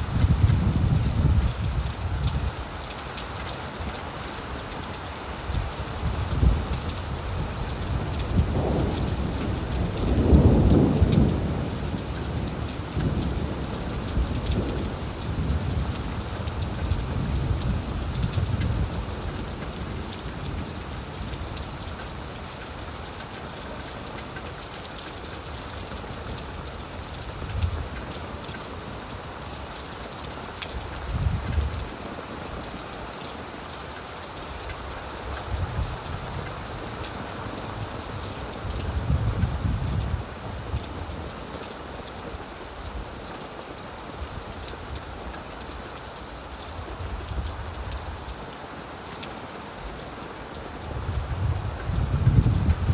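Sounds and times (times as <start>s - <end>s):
heavy rain on a tin roof: 0.0s - 52.9s
rolling thunder: 8.0s - 18.9s.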